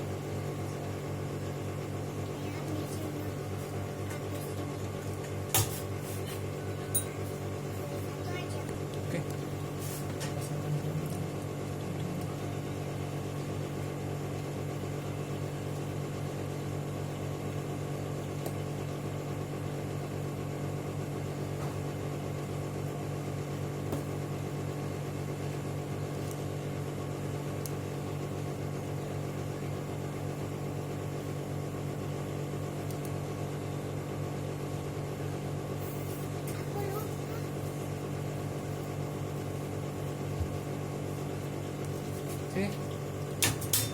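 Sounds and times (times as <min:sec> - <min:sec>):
low mechanical hum: 0:00.0 - 0:43.9.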